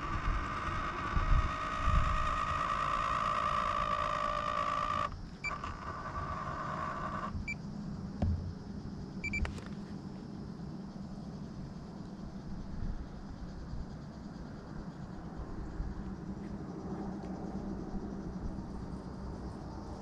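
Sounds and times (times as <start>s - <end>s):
small electric motor whining: 0.0s - 7.6s
short electronic beeps: 9.2s - 9.5s.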